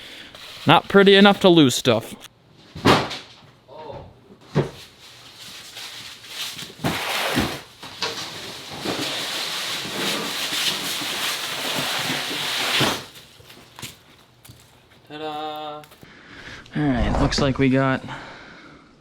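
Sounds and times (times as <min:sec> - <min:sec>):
packaging rustling and tearing: 0:04.8 - 0:15.0.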